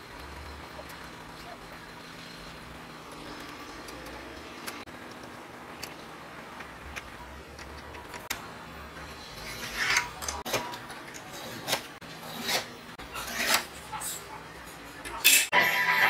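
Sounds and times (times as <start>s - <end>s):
scriber scratching steel plate: 9.0s - 14.4s
metal-on-metal scrapes: 9.1s - 10.2s.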